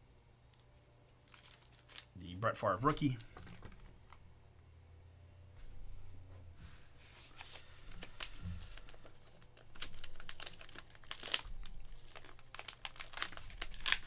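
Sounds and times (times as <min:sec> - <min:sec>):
plastic wrapper crinkling: 0:00.6 - 0:04.2, 0:07.3 - 0:14.0.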